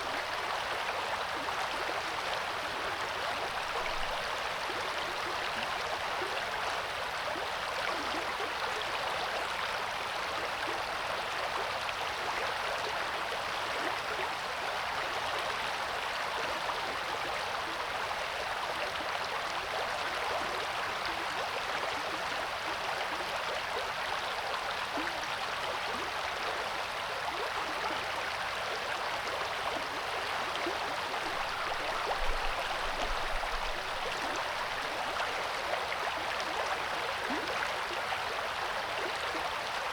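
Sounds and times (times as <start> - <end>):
river water rushing: 31.1 - 36.0.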